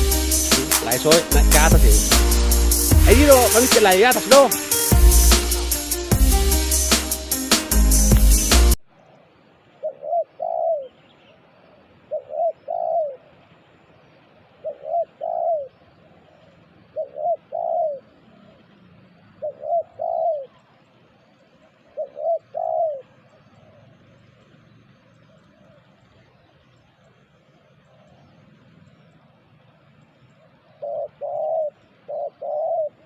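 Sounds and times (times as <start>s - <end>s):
dove cooing: 9.8s - 11.0s, 12.0s - 13.3s, 14.6s - 15.8s, 16.8s - 18.6s, 19.2s - 20.8s, 21.7s - 23.9s, 30.6s - 33.0s.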